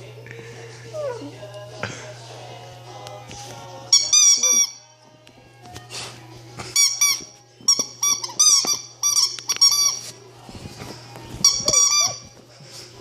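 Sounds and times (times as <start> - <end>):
rubber squeaky toy squeaking: 3.9 - 4.8, 6.8 - 10.1, 11.4 - 12.4.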